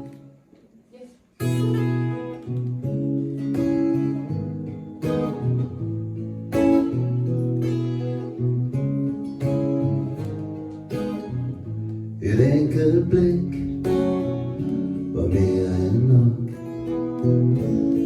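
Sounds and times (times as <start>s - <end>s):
acoustic guitar strumming chords: 0.0s - 0.5s, 1.4s - 18.0s.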